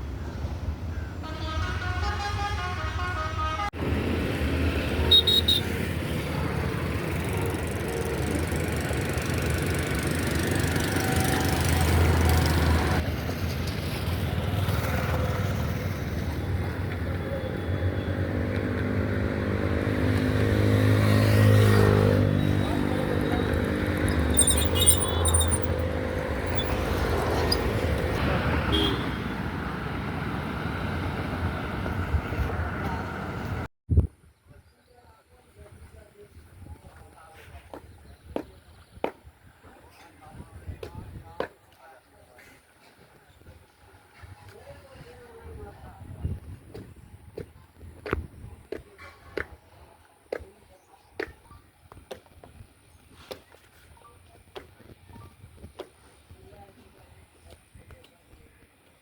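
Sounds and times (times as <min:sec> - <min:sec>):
road traffic noise: 0:00.0 - 0:33.7
vehicle engine passing close: 0:18.2 - 0:28.6.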